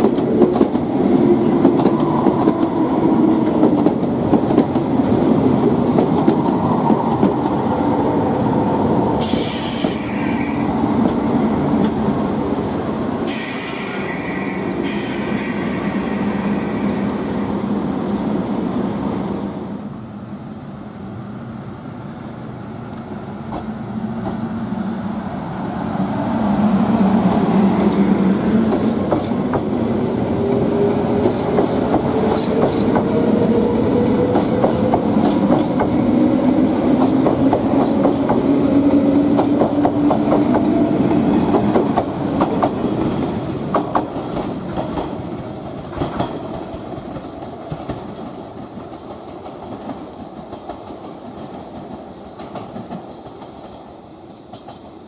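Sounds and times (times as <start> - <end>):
train wheels clicking over rail joints: 0.0 - 7.7, 27.3 - 36.2, 36.8 - 53.8, 54.5 - 55.0
train engine rising in pitch: 6.4 - 20.1.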